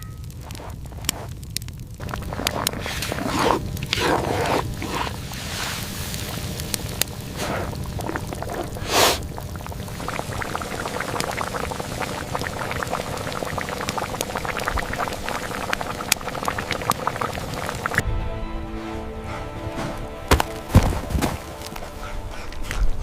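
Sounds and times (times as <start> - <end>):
soup boiling and bubbling: 0.0 - 18.0
music: 18.0 - 23.0.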